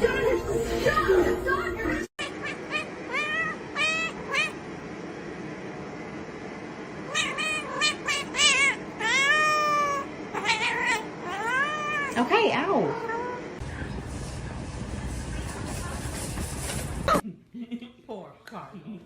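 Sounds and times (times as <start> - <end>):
cat meowing: 2.2 - 4.6, 7.1 - 13.5.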